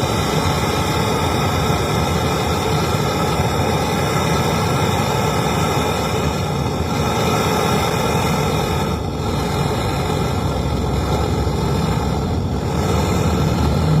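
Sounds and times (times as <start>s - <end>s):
brazing torch flame hissing: 0.0s - 14.0s
low hum: 0.0s - 14.0s.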